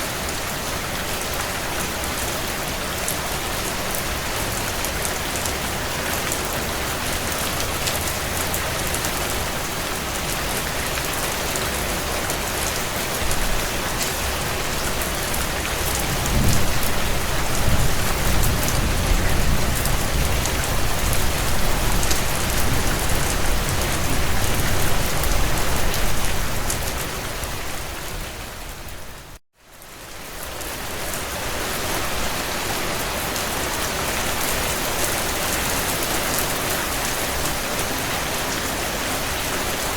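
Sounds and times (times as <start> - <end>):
heavy rain on window panes: 0.0 - 39.9
thunder rumbling: 15.8 - 27.6.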